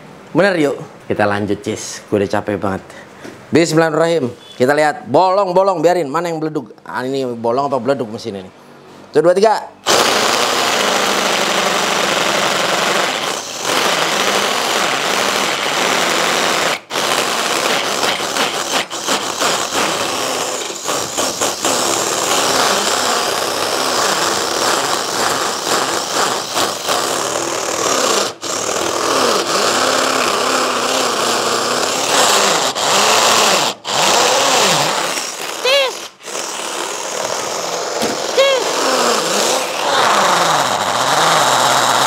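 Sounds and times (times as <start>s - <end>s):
drill hammer-drilling into concrete: 9.8s - 42.0s.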